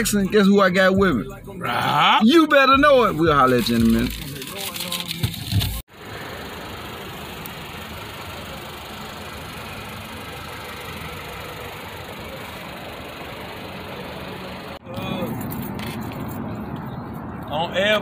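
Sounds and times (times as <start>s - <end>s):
car engine idling: 5.6s - 16.8s.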